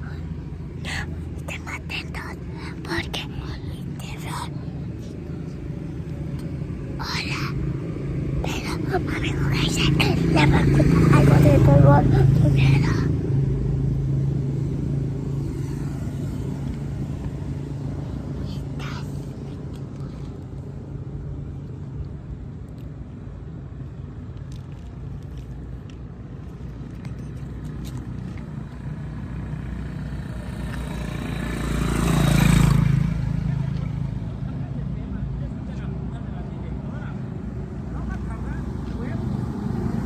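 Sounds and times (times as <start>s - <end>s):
vehicle engine rumbling: 0.0s - 28.8s.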